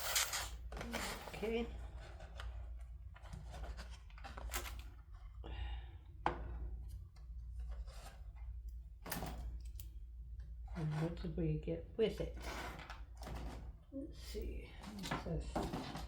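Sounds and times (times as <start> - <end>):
plastic parts rustling and scraping: 0.0 - 5.4, 14.8 - 16.0.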